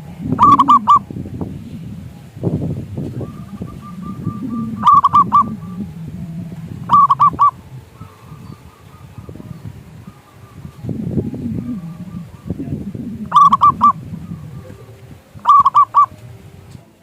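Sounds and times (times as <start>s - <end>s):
dove cooing: 0.0s - 16.8s
low background rumble: 0.0s - 17.0s.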